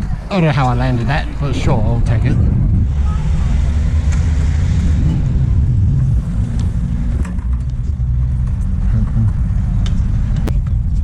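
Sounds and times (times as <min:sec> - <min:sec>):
wind on microphone: 0:00.0 - 0:11.0
sharp clicks and knocks: 0:06.0 - 0:11.0.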